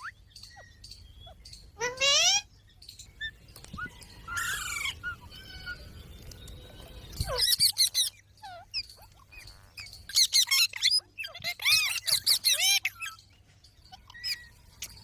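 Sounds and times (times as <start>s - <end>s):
parrot squawk: 1.8s - 2.5s, 7.2s - 13.2s
parrot rapid chirps: 7.1s - 13.3s, 13.9s - 15.0s.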